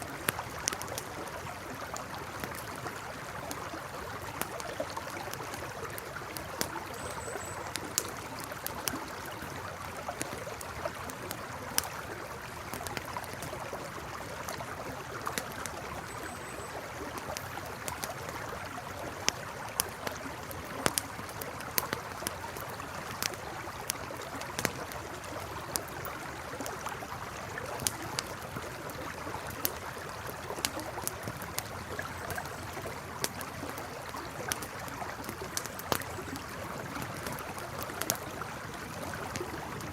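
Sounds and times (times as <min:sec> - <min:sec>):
campfire crackling: 0:00.0 - 0:39.9
river flowing: 0:00.0 - 0:39.9.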